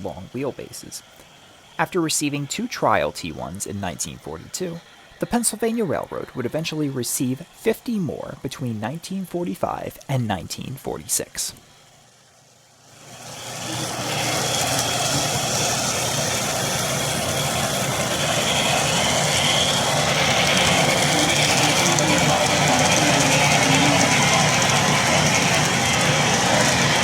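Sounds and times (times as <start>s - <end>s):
model steam locomotive hiss and rumble: 0.0s - 27.0s.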